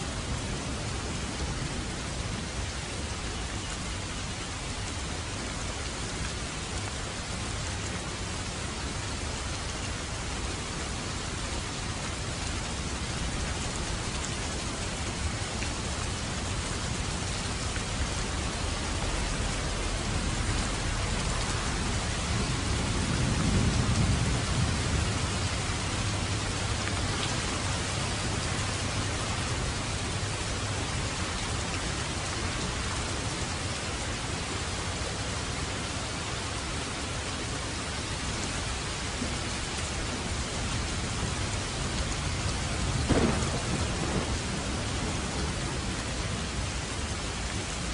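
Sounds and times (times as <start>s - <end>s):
steady rain: 0.0s - 47.9s
thunder rumble: 17.9s - 26.8s, 42.8s - 46.8s.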